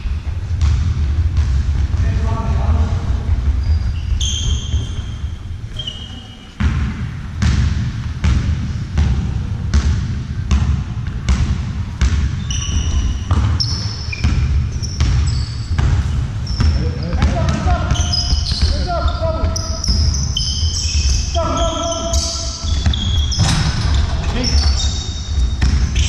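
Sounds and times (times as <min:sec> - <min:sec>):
sneaker squeaks: 0:00.0 - 0:00.8, 0:02.7 - 0:06.8, 0:12.0 - 0:26.0
basketball dribbling on floor: 0:00.1 - 0:02.3, 0:06.6 - 0:23.5, 0:25.2 - 0:26.0.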